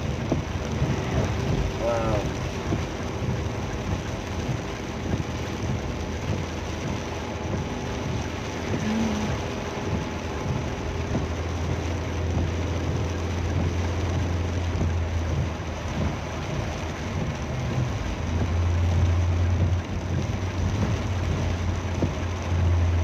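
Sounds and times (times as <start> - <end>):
heavy rain: 0.0 - 23.0
vehicle running rumble: 0.0 - 23.0.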